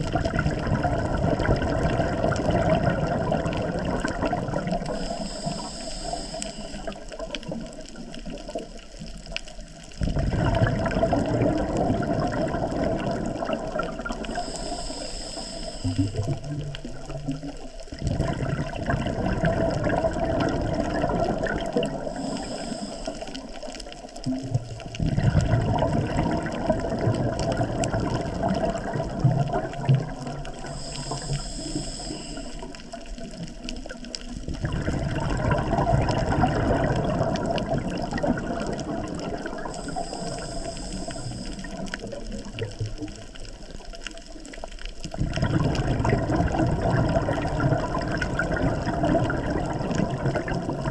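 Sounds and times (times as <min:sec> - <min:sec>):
rumbling underwater bubbles: 0:00.0 - 0:50.9
regulator inhale hiss: 0:04.8 - 0:08.1, 0:14.1 - 0:16.8, 0:21.8 - 0:24.0, 0:30.4 - 0:33.4, 0:38.6 - 0:42.2.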